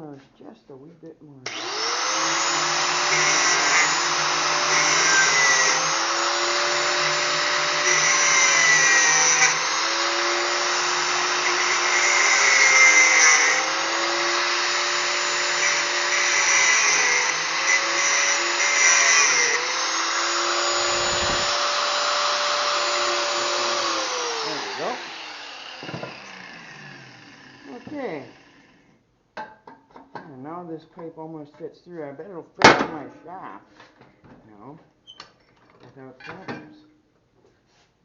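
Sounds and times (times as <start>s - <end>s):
angle grinder cutting steel: 1.5s - 28.8s.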